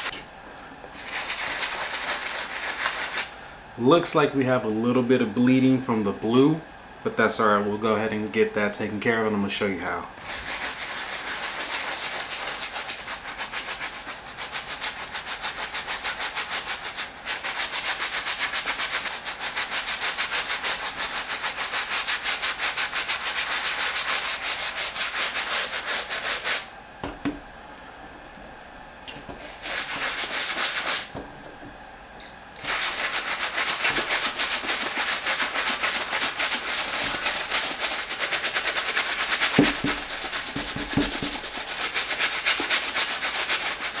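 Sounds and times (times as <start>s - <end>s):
brush scrubbing a sneaker: 1.0s - 3.3s, 10.2s - 26.7s, 29.4s - 31.1s, 32.6s - 44.0s.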